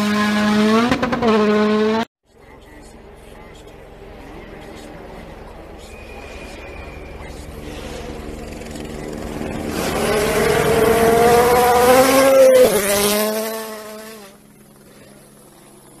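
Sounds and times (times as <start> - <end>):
rally car engine passing: 0.0 - 2.1, 2.9 - 15.8.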